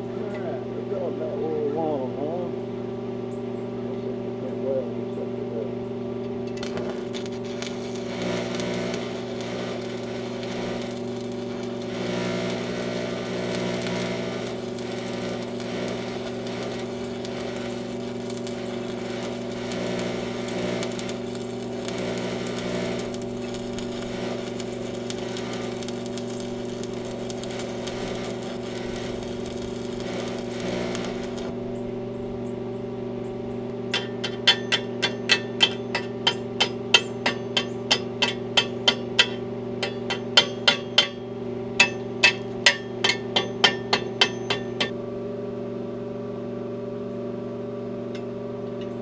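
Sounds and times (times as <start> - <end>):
electrical hum: 0.0 - 49.0
welding arc crackling: 6.4 - 32.0.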